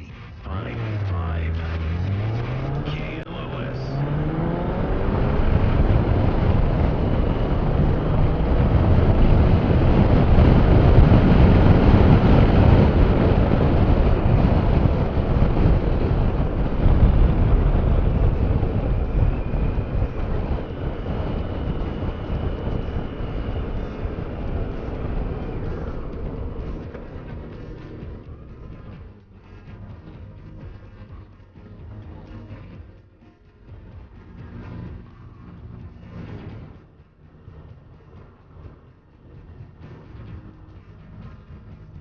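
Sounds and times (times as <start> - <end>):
motorcycle engine: 0.0 - 42.0
wind rush on microphone: 1.3 - 31.2.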